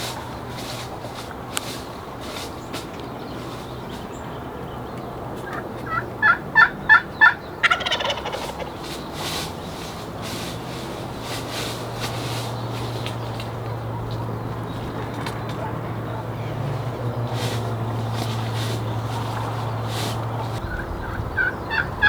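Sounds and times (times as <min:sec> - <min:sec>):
wild turkey gobble: 0:05.4 - 0:09.6, 0:18.8 - 0:22.0.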